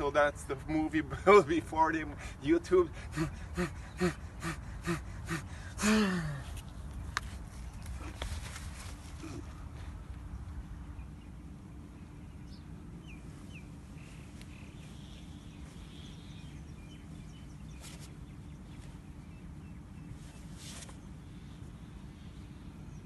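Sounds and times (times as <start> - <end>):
low outdoor rumble: 0.0 - 23.0
small birds chirping: 6.7 - 23.0.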